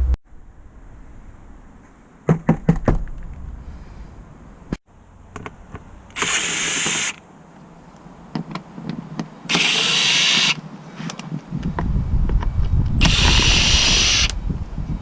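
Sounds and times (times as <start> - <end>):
cordless power tool running: 9.5 - 10.6, 13.0 - 14.4.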